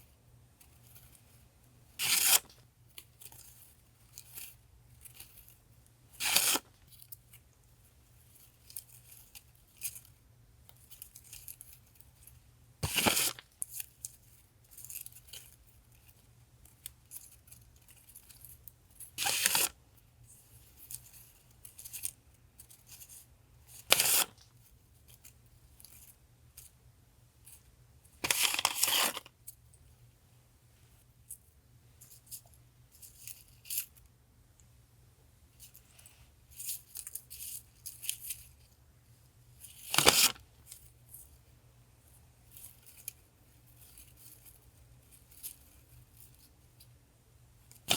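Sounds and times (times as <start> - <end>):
paper crinkling and tearing: 6.2 - 6.7, 12.8 - 13.4, 19.2 - 19.7, 23.9 - 24.4, 28.2 - 29.3, 39.8 - 40.4
paper rustling: 28.2 - 29.3.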